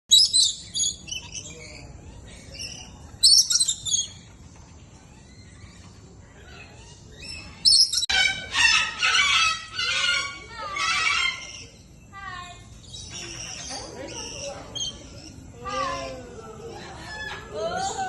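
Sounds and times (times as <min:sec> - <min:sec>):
parrots chirping shrilly: 0:00.1 - 0:04.3, 0:06.4 - 0:12.0.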